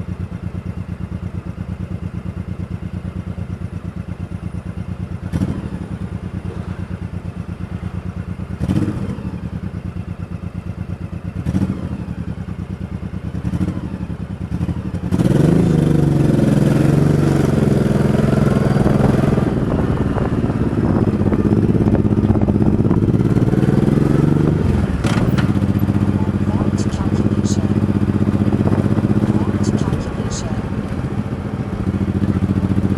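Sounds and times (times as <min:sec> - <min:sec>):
motorcycle engine idling: 0:00.0 - 0:32.9
engine knocks: 0:18.7 - 0:32.9.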